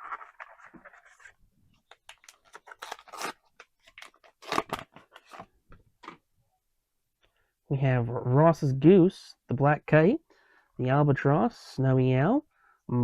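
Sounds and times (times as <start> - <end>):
foil wrapper tearing and crinkling: 2.1 - 4.9.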